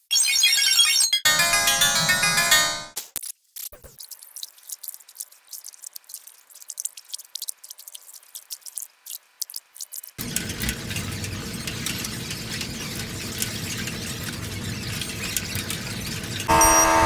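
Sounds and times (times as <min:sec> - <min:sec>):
loud fuller sound: 0:16.5 - 0:17.0.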